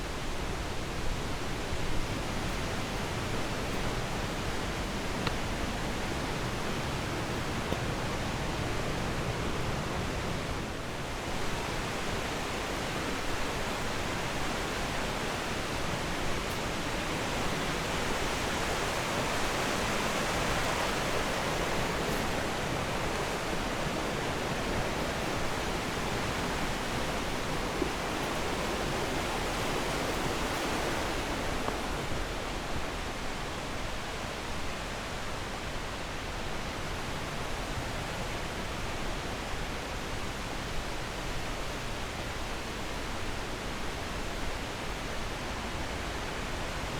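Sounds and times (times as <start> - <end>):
rushing water: 0.0 - 46.9.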